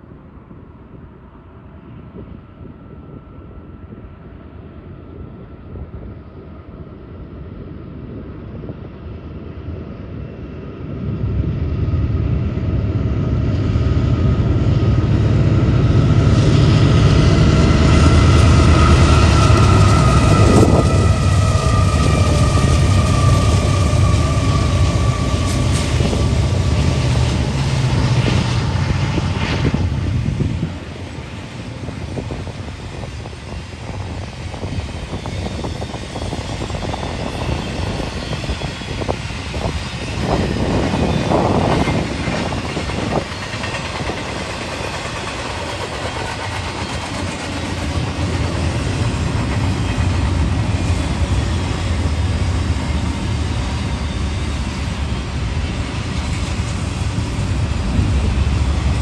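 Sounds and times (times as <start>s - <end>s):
train engine rumble: 0.0s - 59.0s
rail cars clattering past: 12.4s - 59.0s.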